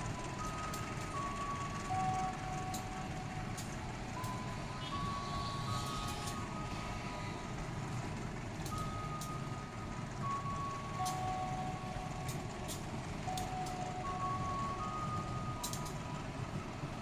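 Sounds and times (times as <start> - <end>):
slow tune of held tones: 0.0 - 17.0
train rumbling: 0.0 - 17.0
sharp high clicks: 5.8 - 6.6, 15.6 - 16.1.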